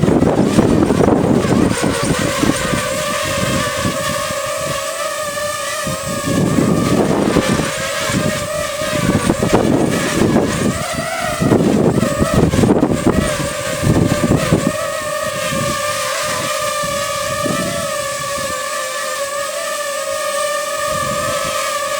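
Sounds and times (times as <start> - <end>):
drone propeller whine: 0.0 - 21.9
wind buffeting on microphone: 0.0 - 21.9.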